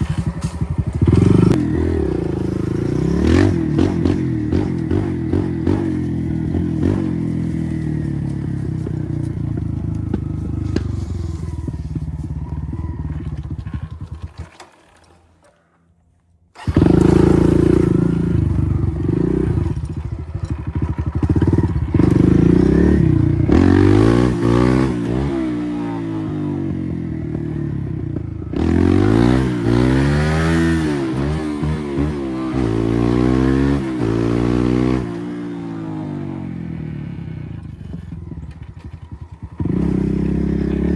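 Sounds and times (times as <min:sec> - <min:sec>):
dirt bike engine revving: 0:00.0 - 0:14.6, 0:16.6 - 0:40.9.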